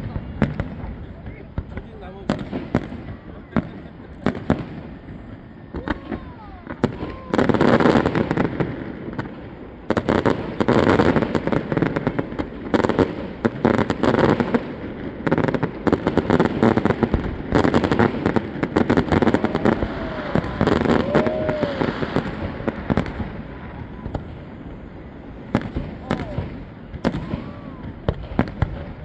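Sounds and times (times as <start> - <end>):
fireworks bursts and crackles: 0.0 - 29.0.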